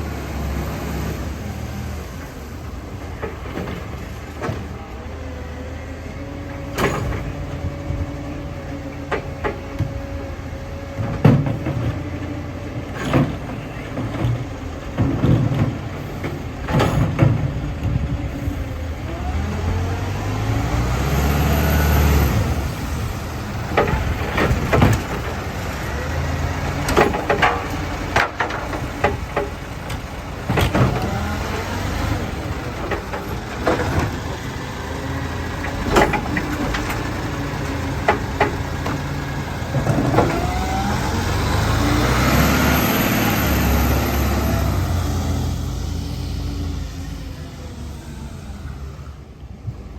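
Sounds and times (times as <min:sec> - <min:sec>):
garbage truck diesel engine: 0:00.0 - 0:49.9
bins and metal clanking: 0:12.9 - 0:18.0, 0:26.7 - 0:31.4, 0:35.5 - 0:40.6.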